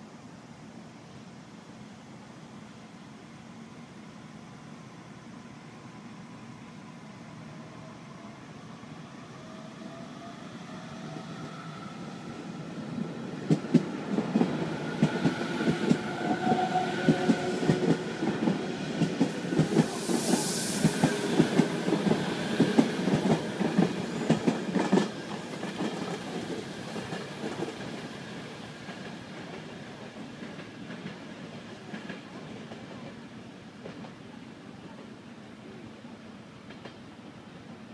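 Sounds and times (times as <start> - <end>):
electric train passing: 1.6 - 34.4
brief hiss: 19.3 - 23.1.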